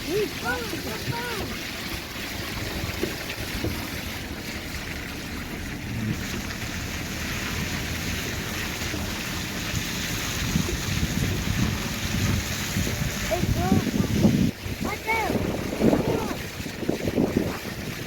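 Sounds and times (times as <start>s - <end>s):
wind buffeting microphone: 6.7s - 18.0s.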